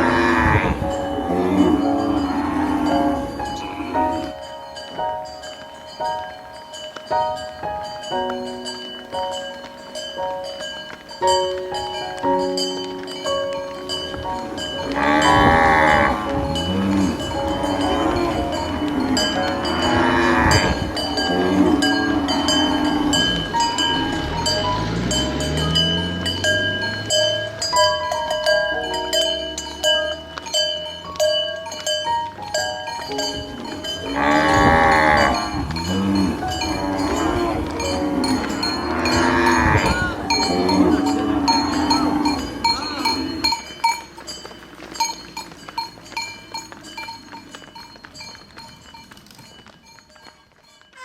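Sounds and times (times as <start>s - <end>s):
cattle mooing: 0.0s - 4.3s, 14.4s - 27.7s, 33.1s - 43.6s
cowbells clanking and ringing: 0.0s - 51.0s.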